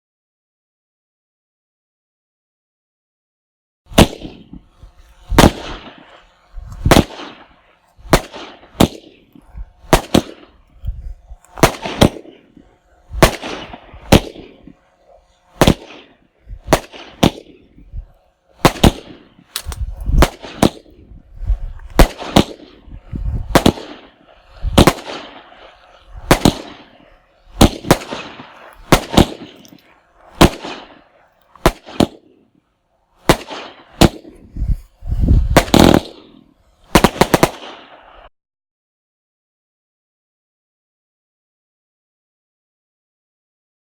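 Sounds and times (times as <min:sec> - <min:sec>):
firework cake sharp bangs: 0:03.9 - 0:04.6, 0:05.3 - 0:06.2, 0:06.8 - 0:10.6, 0:11.6 - 0:14.7, 0:15.6 - 0:17.8, 0:18.6 - 0:21.1, 0:21.9 - 0:29.7, 0:30.3 - 0:32.4, 0:33.2 - 0:34.4, 0:35.5 - 0:38.1.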